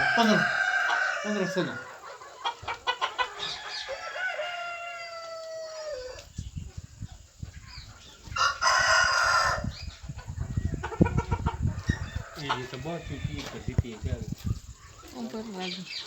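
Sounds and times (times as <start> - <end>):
rooster crowing: 0.0 - 2.0, 3.4 - 6.2, 8.3 - 9.8, 11.9 - 13.8
chickens clucking: 0.0 - 16.0.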